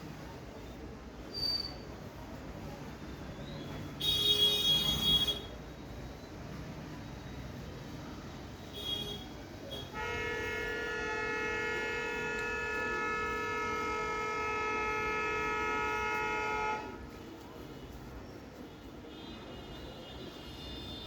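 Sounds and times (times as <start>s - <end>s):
horn-like tone: 9.8s - 17.1s.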